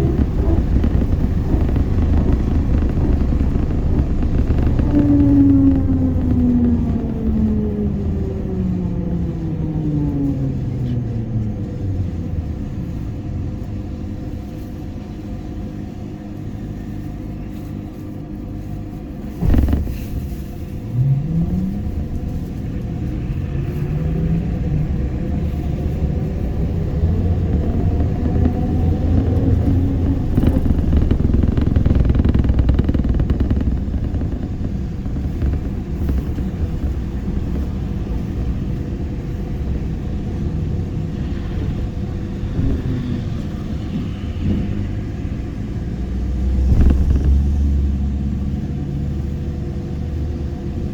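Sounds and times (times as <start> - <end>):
trolleybus motor whining: 0.0 - 15.7, 19.4 - 50.9
sharp knock: 19.4 - 20.5.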